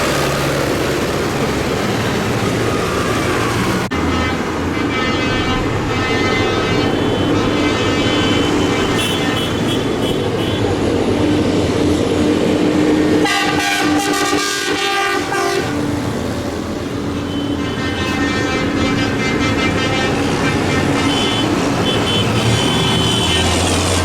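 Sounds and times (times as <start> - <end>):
tractor diesel engines running: 0.0 - 24.0
high multi-tone horn blast: 3.9 - 10.8, 13.1 - 16.0, 17.1 - 24.0
loud air horn: 3.9 - 10.8, 13.2 - 16.0, 17.1 - 24.0.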